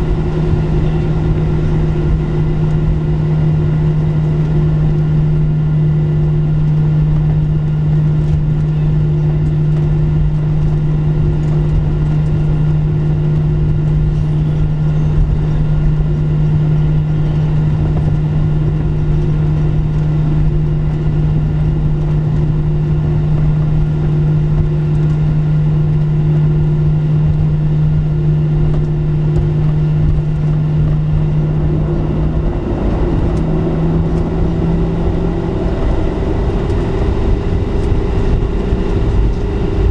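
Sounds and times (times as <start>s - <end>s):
airplane cabin hum: 0.0s - 5.5s, 17.0s - 25.3s, 28.5s - 39.9s
steady low tone: 0.0s - 5.6s, 29.4s - 39.9s.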